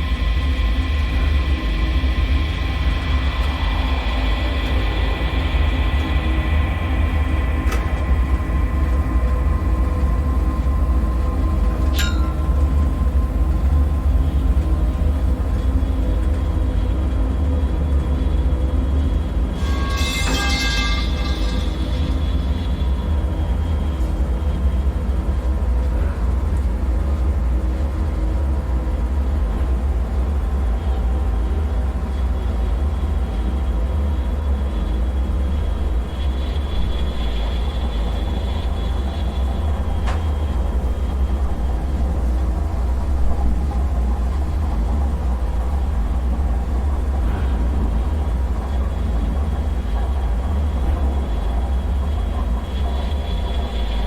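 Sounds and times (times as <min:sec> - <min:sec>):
deep low rumble: 0:00.0 - 0:19.5.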